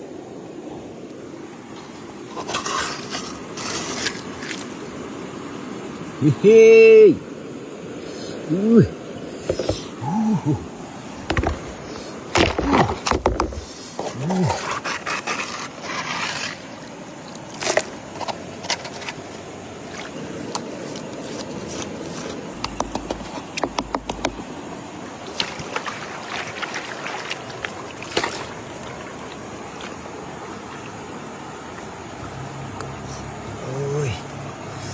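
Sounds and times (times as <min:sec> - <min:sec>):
hard objects scraping and clicking: 0:11.3 - 0:16.7, 0:20.5 - 0:24.4
sharp knocks: 0:22.6 - 0:24.4.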